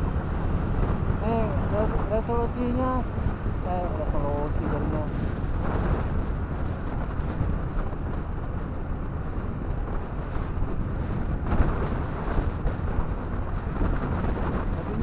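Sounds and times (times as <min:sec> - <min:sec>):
road noise: 0:00.0 - 0:15.0
wind rushing over microphone: 0:00.0 - 0:15.0.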